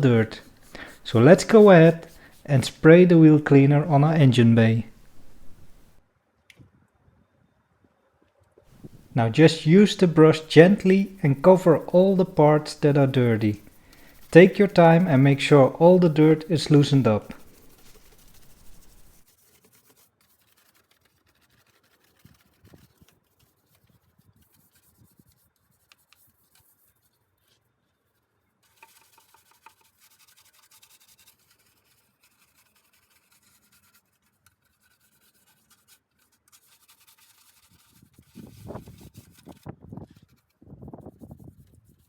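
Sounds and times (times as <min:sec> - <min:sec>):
brush scrubbing engine parts: 0:00.0 - 0:06.0, 0:08.8 - 0:22.5, 0:28.8 - 0:39.6.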